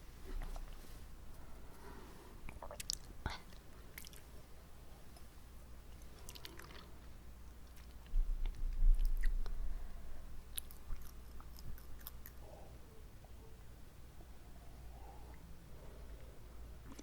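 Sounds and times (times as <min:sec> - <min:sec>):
wet mouth clicks and smacks: 0:10.5 - 0:12.4.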